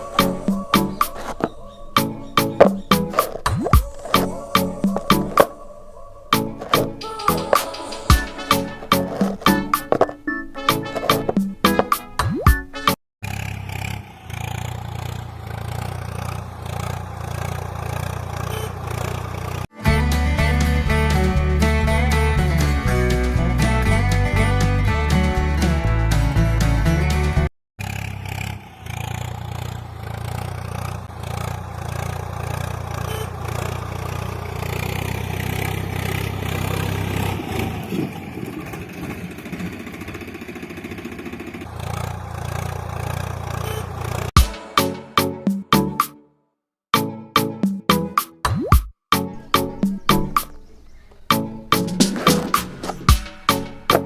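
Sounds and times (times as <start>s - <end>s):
small motor running: 13.2s - 19.6s, 38.8s - 44.3s.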